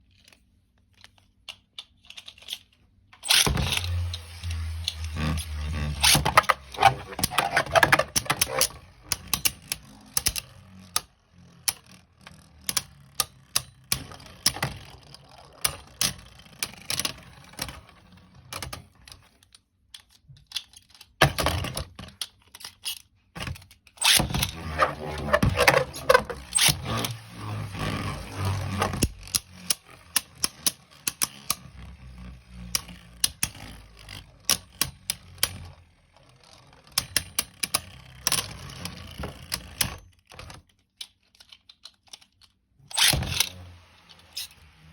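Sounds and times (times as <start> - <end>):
spinning tops rattling and scraping: 1.9 - 17.9
plastic clicks and clacks: 36.4 - 43.5.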